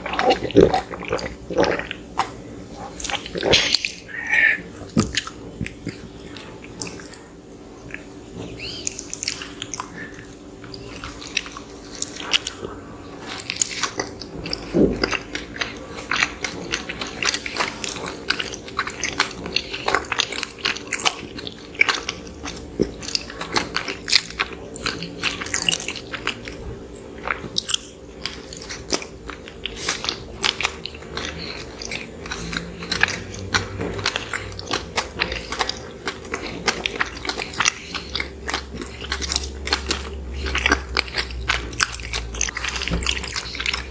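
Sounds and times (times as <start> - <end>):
chewing soft bread: 0.0 - 43.9.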